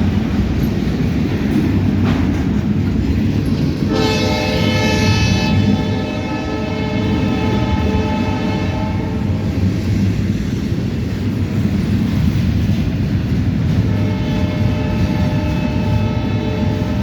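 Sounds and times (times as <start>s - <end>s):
freight train rolling by: 0.0s - 17.0s
train air horn: 3.9s - 9.6s, 13.7s - 17.0s.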